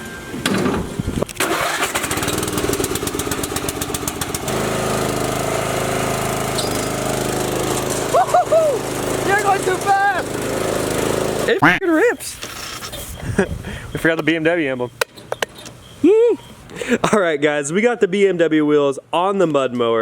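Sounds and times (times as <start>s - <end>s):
lawn mower engine starting: 0.3s - 11.6s.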